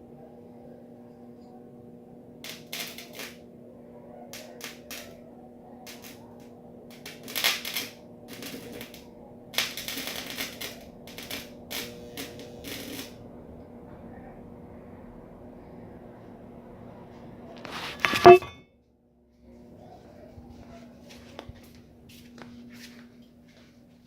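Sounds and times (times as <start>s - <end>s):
electrical crackling: 2.5s - 3.4s, 7.0s - 9.0s, 9.6s - 13.1s.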